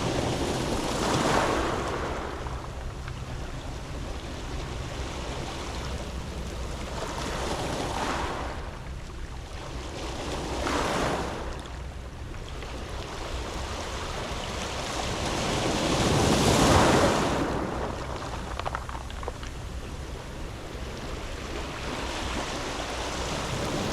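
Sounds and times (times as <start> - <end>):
waves washing onto pebble beach: 0.0 - 8.7, 12.8 - 23.9.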